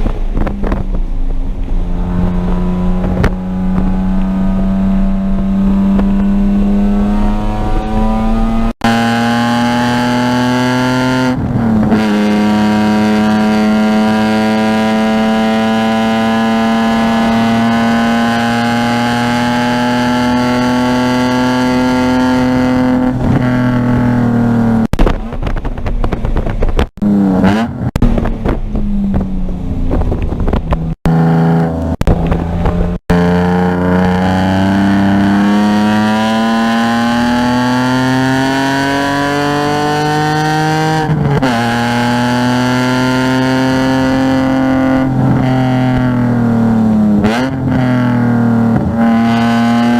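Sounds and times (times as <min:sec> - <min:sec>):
car engine revving and shifting: 0:00.0 - 0:25.6, 0:26.7 - 0:49.9.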